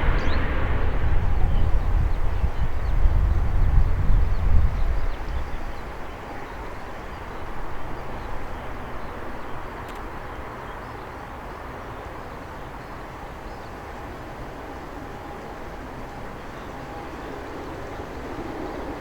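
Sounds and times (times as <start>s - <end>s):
turboprop plane taking off: 0.0s - 9.8s
wind rumbling on microphone: 0.0s - 10.5s.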